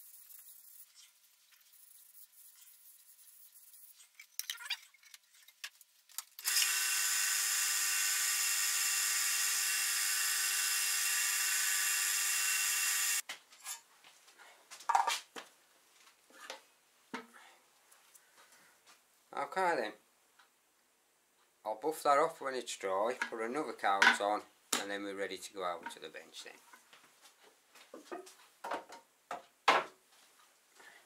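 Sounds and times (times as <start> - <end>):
power tool motor whining: 6.4 - 13.2.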